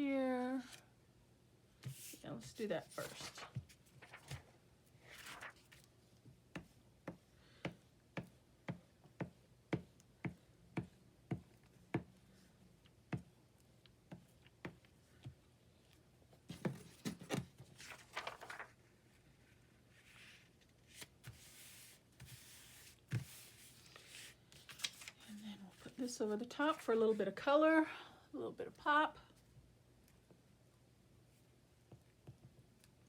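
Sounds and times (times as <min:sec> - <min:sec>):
paper rustling: 0:01.8 - 0:05.9, 0:16.5 - 0:18.9, 0:19.5 - 0:26.0.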